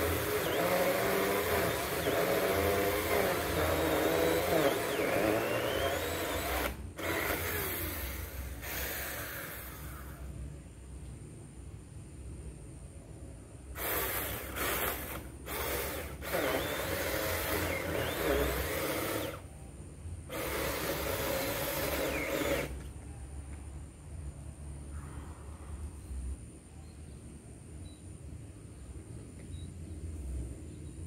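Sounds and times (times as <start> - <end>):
mini chainsaw cutting wood: 0.0 - 10.2, 13.8 - 19.4, 20.3 - 22.9.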